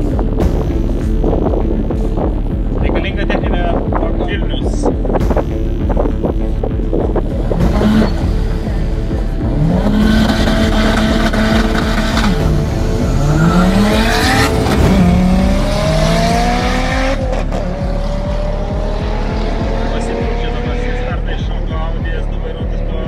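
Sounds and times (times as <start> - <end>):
race car engine revving and accelerating: 6.9 - 23.0.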